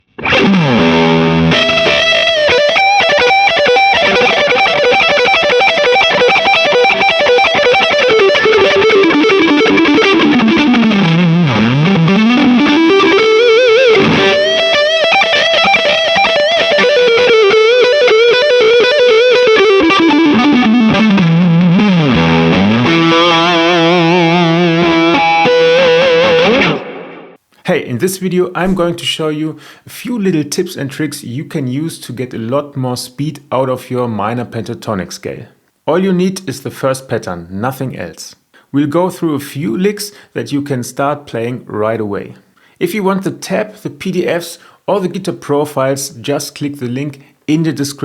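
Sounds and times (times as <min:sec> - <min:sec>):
distorted electric guitar solo: 0:00.0 - 0:27.4.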